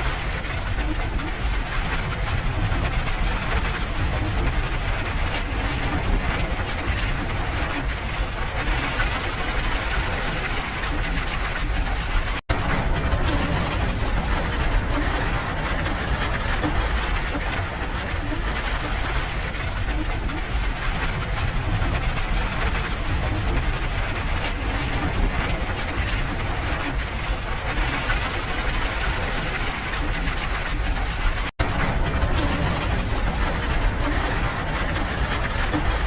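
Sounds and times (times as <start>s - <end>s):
steady rain: 0.0s - 36.0s
deep low rumble: 9.7s - 27.0s, 28.9s - 36.0s.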